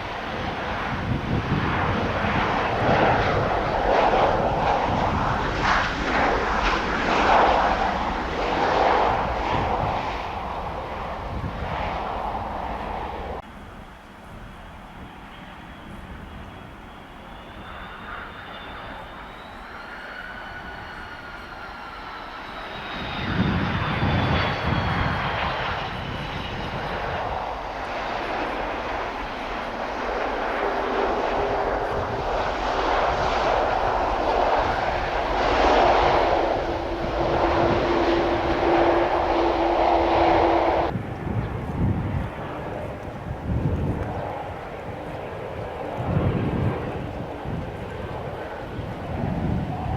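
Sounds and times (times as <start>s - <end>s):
jet engine fan whine: 0.0s - 49.9s
jet engine rush: 0.0s - 49.9s.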